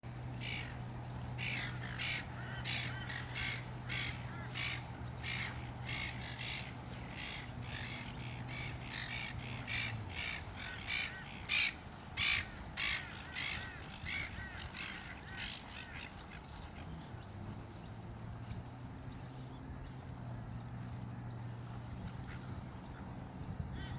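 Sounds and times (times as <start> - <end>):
steady low hum: 0.0 - 23.9
bird harsh caw-like calls: 0.4 - 0.8, 1.4 - 16.4.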